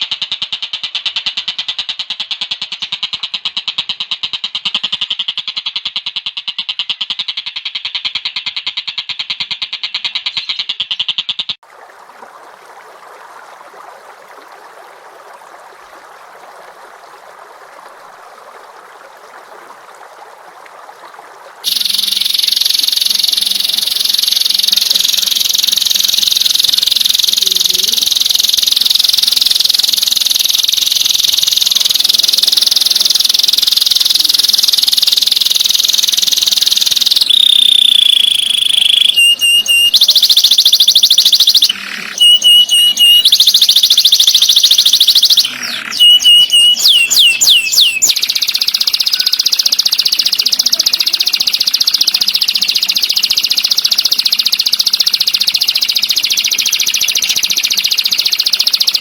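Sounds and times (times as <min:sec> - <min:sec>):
songbird trilling and whistling: 0:05.9 - 0:11.6, 0:21.7 - 0:59.0.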